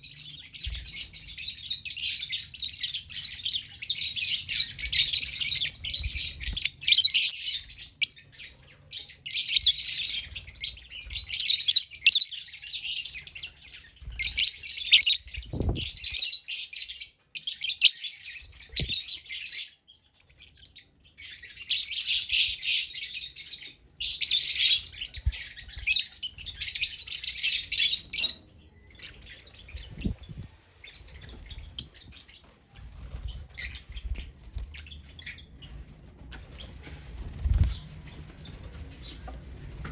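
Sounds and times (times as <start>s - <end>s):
lovebirds chirping: 0.0s - 39.4s.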